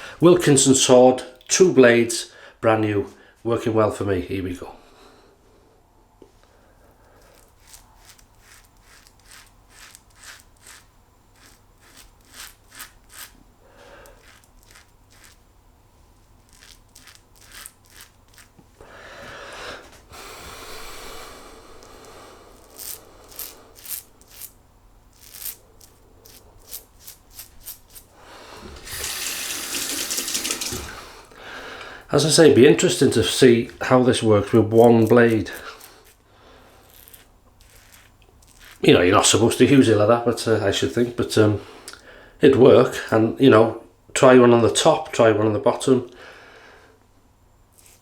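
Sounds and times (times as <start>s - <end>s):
razor scraping stubble: 7.0s - 15.5s, 16.3s - 18.8s, 21.7s - 31.0s, 32.3s - 41.5s, 47.7s - 48.0s
tap running: 28.5s - 31.1s.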